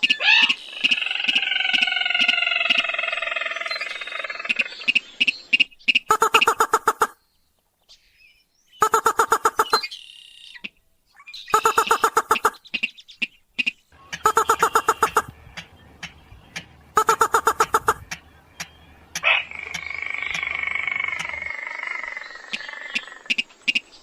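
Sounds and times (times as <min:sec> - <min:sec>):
rapid rattling bird notes: 0:14.0 - 0:22.0
sharp ticks: 0:14.1 - 0:21.4.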